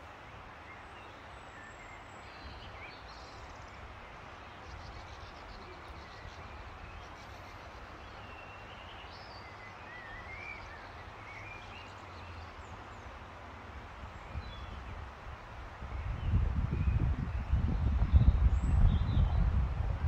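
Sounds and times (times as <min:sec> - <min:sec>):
songbirds chirping and warbling: 0:00.1 - 0:20.0
wind gusting on microphone: 0:14.0 - 0:20.0.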